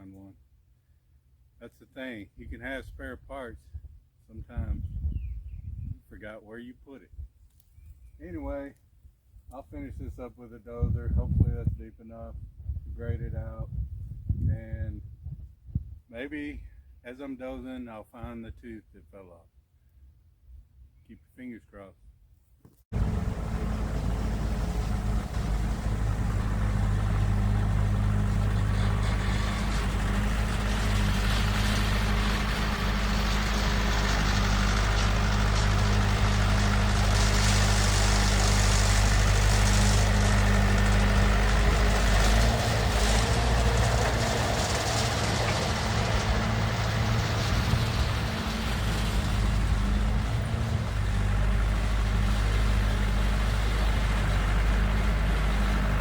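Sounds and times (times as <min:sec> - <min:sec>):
dozer diesel engine running: 0:22.9 - 0:56.0.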